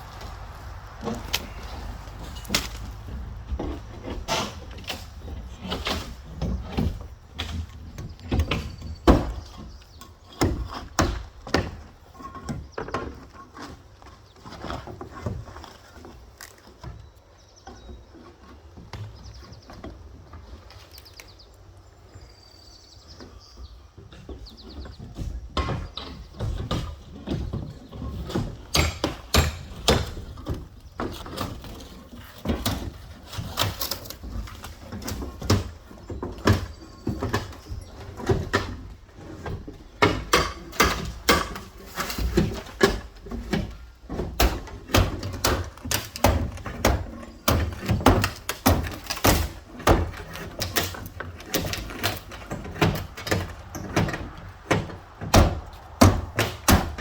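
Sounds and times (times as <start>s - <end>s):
wooden boards knocking and cracking: 0.0s - 13.8s, 24.0s - 57.0s.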